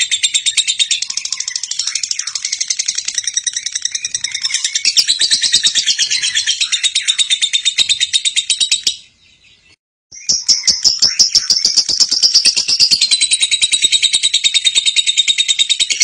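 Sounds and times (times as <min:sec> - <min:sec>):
lovebird chattering trill: 0:00.0 - 0:09.1, 0:10.1 - 0:16.0.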